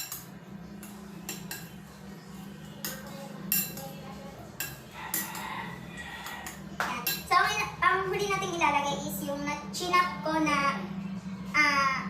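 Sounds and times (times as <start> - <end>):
utensil clinking against bowl: 0.0 - 1.9, 2.6 - 7.3.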